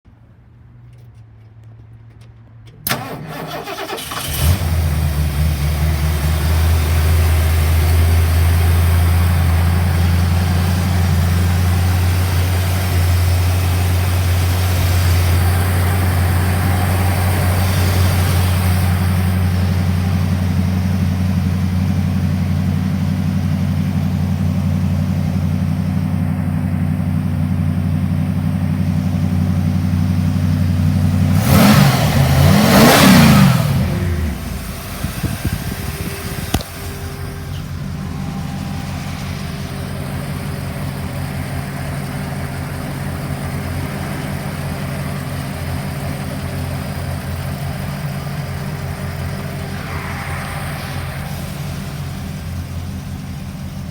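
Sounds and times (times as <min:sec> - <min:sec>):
engine idling: 0:02.8 - 0:53.9
starter motor cranking: 0:02.9 - 0:05.0.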